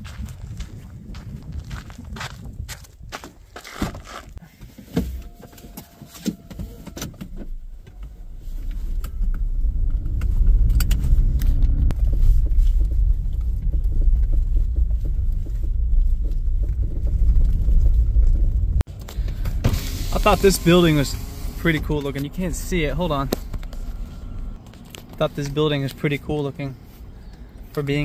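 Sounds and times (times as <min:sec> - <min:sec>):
road noise: 0:00.0 - 0:28.0
car engine accelerating: 0:07.2 - 0:28.0.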